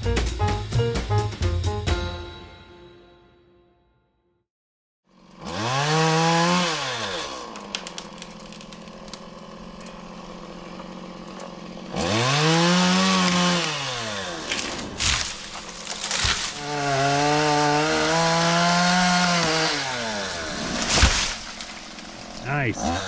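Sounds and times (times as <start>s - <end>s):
chainsaw revving and idling: 5.1s - 23.0s.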